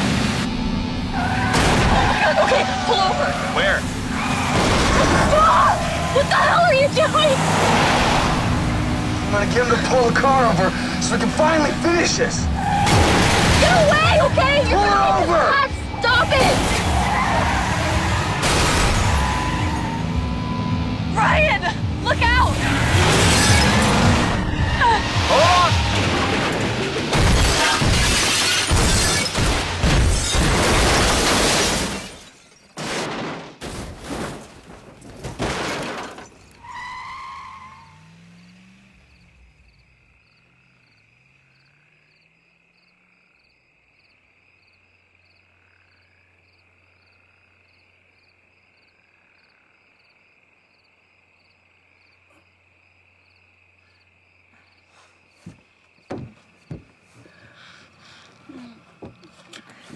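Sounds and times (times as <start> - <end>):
metal crunching in car crash: 1.2 - 6.2, 7.4 - 15.4, 16.0 - 20.6, 22.5 - 37.4
glass shattering: 16.4 - 19.6, 22.8 - 24.4, 25.2 - 36.4.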